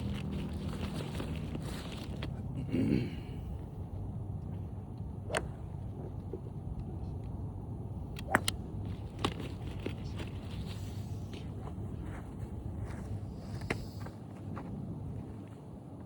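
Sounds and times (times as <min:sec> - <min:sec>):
low background rumble: 0:00.0 - 0:16.0
golf clubs striking balls: 0:05.2 - 0:06.5, 0:08.0 - 0:10.0.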